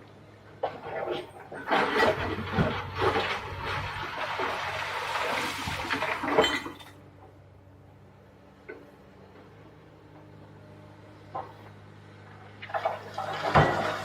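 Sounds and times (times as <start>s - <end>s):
excavator engine hum: 0.0s - 14.0s.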